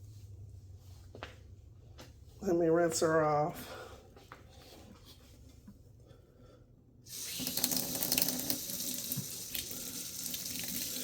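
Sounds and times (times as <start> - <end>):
faucet turning on: 7.1 - 11.0
water running into sink: 7.1 - 11.0.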